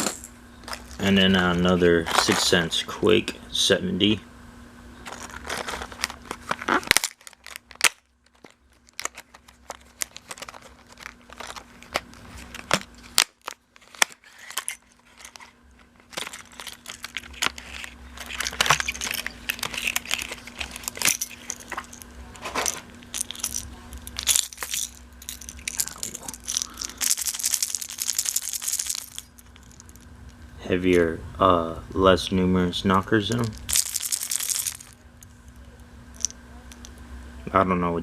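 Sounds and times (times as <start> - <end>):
plastic packaging crinkling: 5.0 - 30.3, 33.2 - 35.2
rattle beads knocking: 5.1 - 30.1, 33.3 - 35.0, 36.2 - 36.9.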